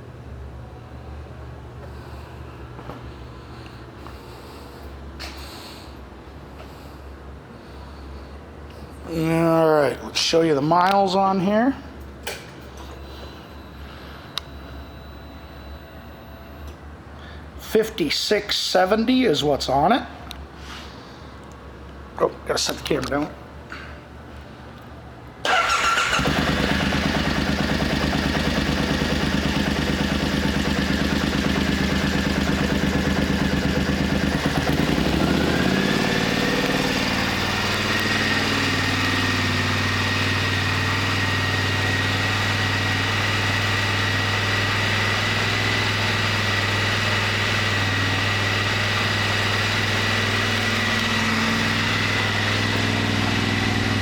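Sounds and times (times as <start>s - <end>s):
motorcycle engine starting and idling: 25.4s - 54.0s.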